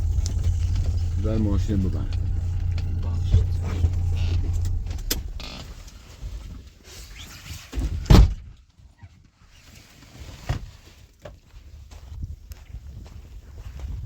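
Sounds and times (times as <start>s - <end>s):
heavy thump: 0.0s - 6.1s.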